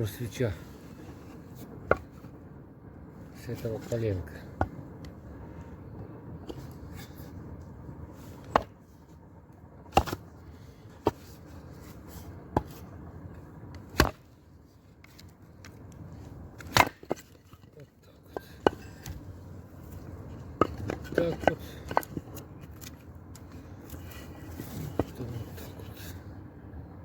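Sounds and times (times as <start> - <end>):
axe chopping wooden log: 8.4 - 8.7, 9.9 - 10.3, 13.8 - 14.2, 16.6 - 17.4, 18.3 - 19.2.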